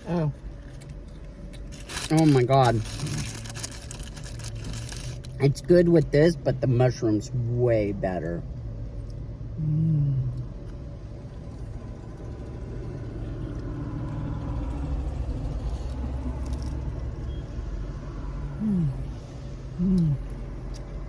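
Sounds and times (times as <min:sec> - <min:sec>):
short falling voice hums: 0:18.6 - 0:19.1, 0:19.8 - 0:20.3.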